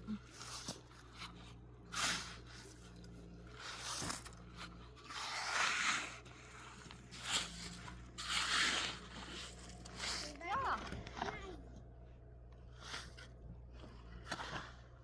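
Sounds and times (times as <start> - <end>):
short scraping sounds: 0.3 - 11.2.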